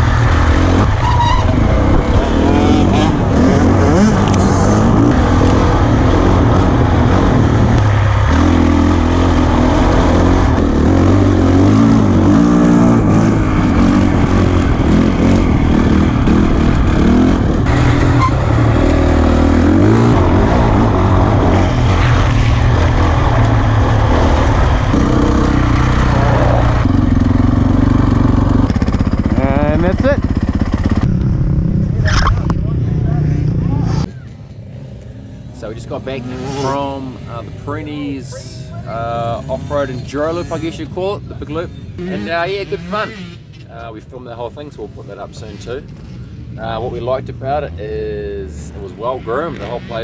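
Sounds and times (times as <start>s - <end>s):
wind noise on microphone: 0.0s - 7.9s
dirt bike engine revving: 0.0s - 43.6s.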